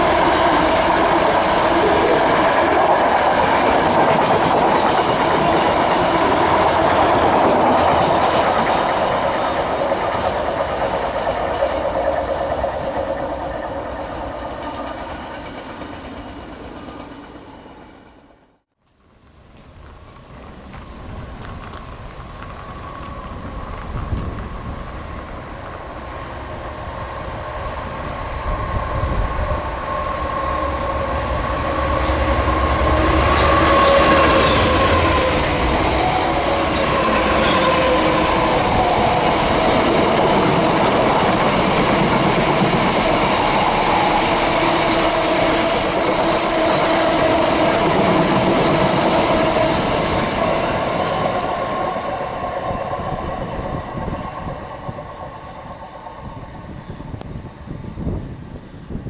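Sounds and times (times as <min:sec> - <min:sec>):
diesel locomotive engine passing: 0:00.0 - 0:18.6, 0:19.3 - 0:59.0
high wheel squeaks: 0:26.6 - 0:57.2.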